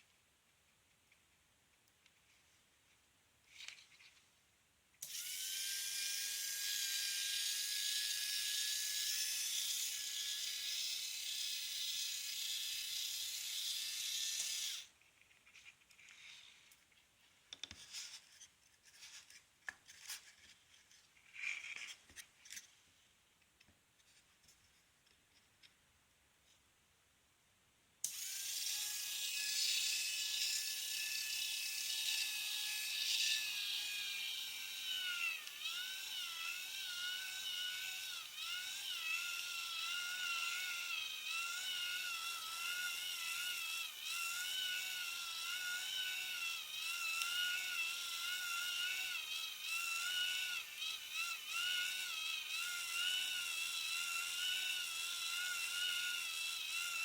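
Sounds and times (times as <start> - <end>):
small drill whining into wood: 5.0 - 15.0, 28.0 - 57.0.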